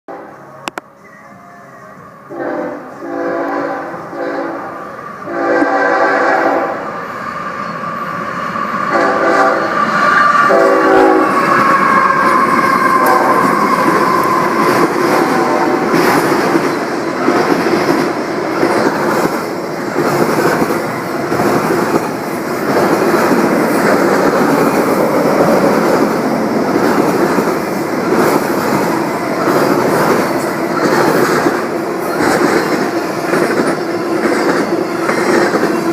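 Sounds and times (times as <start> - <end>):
train air horn blasts: 2.3 - 6.8, 8.9 - 16.0
train cars clattering on rails: 11.4 - 35.9.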